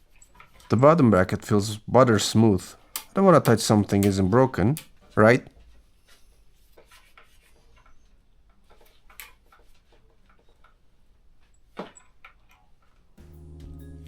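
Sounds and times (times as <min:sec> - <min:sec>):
bicycle parts clicking and tapping: 0:02.8 - 0:05.0.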